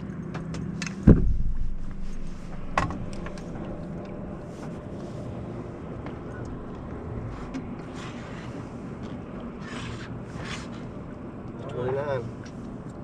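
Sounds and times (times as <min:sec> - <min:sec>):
boat noise: 0:00.0 - 0:13.0
wind: 0:00.0 - 0:13.0
heavy thump on boat: 0:01.0 - 0:03.7.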